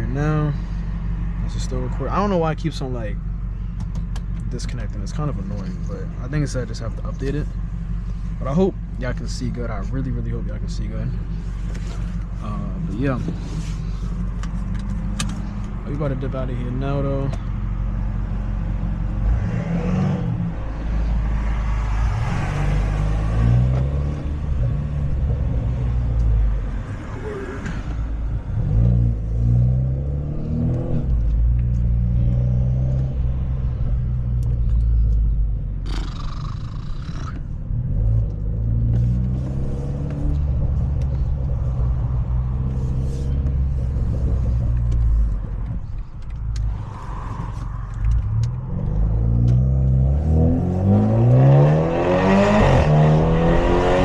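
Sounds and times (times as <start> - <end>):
car exhaust revving: 27.7 - 54.0.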